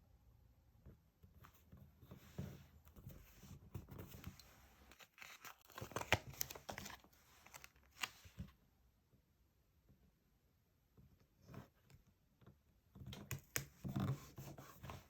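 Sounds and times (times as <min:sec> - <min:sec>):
paper crinkling and rustling: 0:02.2 - 0:08.5.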